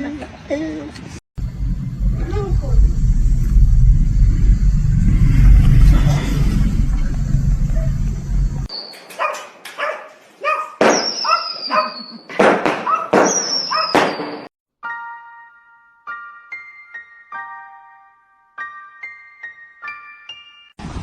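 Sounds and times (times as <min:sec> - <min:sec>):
low rumble: 0:01.4 - 0:08.7
dog barking and yelping: 0:09.1 - 0:12.0, 0:12.8 - 0:14.0.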